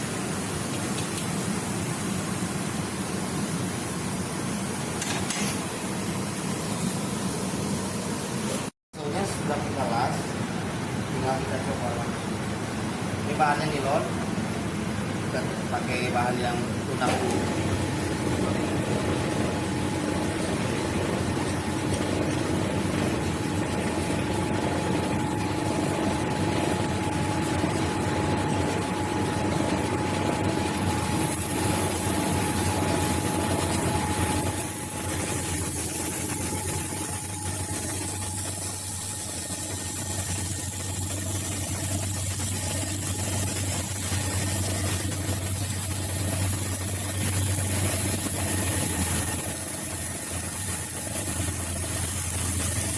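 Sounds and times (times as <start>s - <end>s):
high whine: 15.3s - 52.9s.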